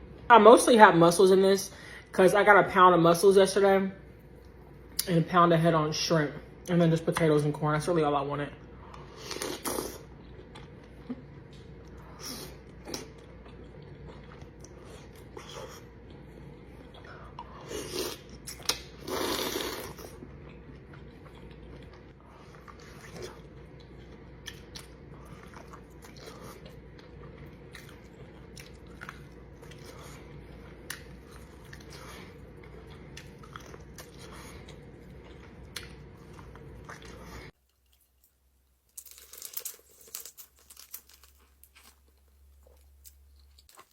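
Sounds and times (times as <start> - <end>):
close-miked chewing and mouth sounds: 8.9 - 38.3
crunching: 37.6 - 43.9.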